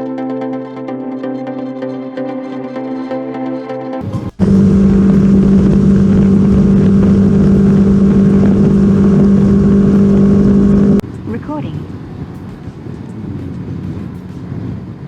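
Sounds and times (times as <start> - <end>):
electronic music: 2.6 - 11.0
loud rush of noise: 4.1 - 11.0
motorcycle engine cruising: 4.4 - 11.0.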